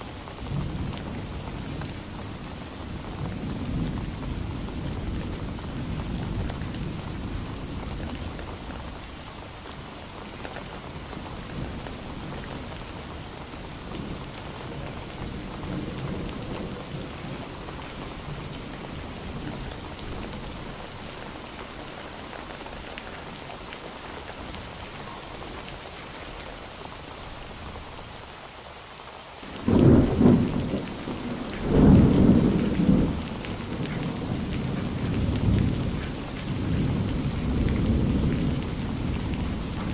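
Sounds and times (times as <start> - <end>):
steady rain: 0.0 - 39.9
thunder rumbling: 0.4 - 9.1, 10.1 - 21.1, 29.5 - 39.9
loud thunderclaps: 29.5 - 39.9.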